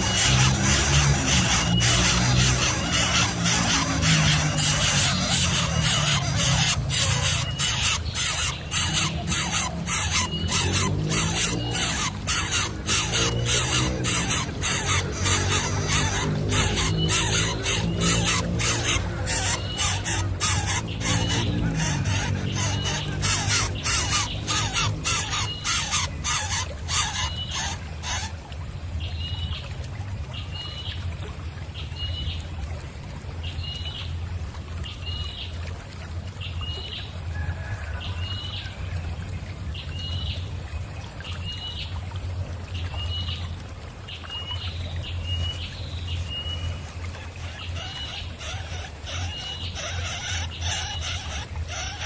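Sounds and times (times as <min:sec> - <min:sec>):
raspy nestling calls: 0:00.0 - 0:28.4, 0:47.4 - 0:52.0.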